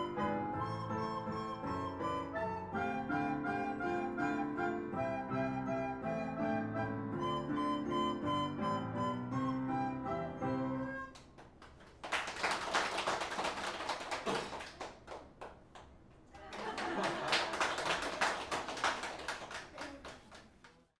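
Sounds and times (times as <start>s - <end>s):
audience applauding: 11.1s - 20.9s.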